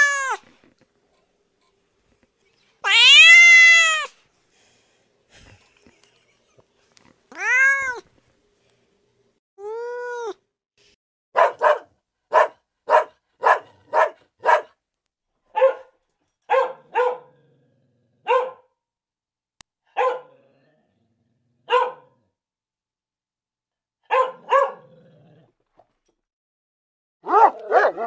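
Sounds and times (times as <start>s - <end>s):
cat meowing: 0.0s - 0.4s, 2.8s - 4.1s, 7.3s - 8.1s
dog barking: 11.4s - 14.8s, 15.5s - 17.4s, 18.2s - 18.7s, 19.9s - 20.4s, 21.6s - 22.2s, 24.0s - 24.9s, 27.2s - 28.0s.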